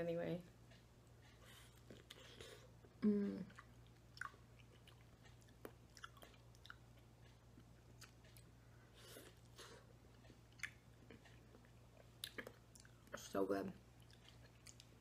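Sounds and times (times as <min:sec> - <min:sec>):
low steady hum: 0:00.0 - 0:15.0
wet chewing smacks: 0:03.5 - 0:13.2, 0:14.0 - 0:15.0.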